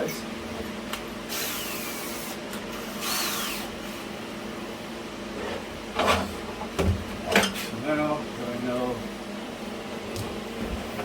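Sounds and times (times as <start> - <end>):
cordless drill whirring: 1.3 - 3.7.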